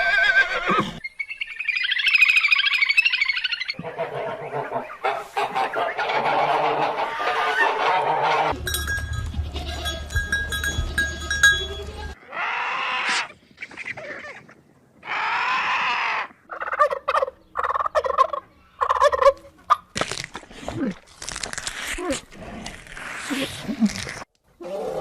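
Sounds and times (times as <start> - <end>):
farmyard fowl calling: 3.2 - 14.4, 15.0 - 19.9.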